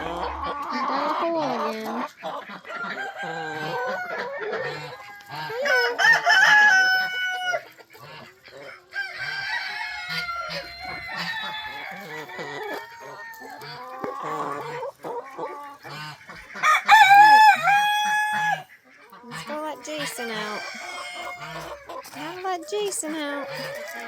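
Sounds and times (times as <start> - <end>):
hens clucking: 0.0 - 24.0
rooster crowing: 2.8 - 4.4, 5.5 - 7.6, 9.0 - 13.7, 16.6 - 18.7, 20.2 - 21.8.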